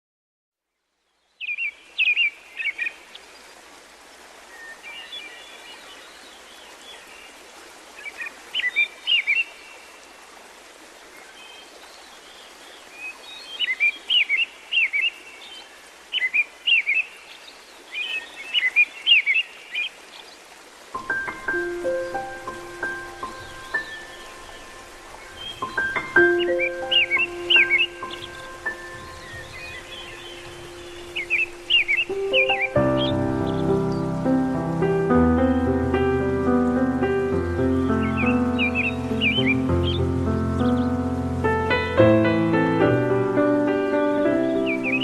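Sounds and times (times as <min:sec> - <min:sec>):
background hiss: 0:00.7 - 0:45.0
songbirds chirping and singing: 0:11.3 - 0:45.0.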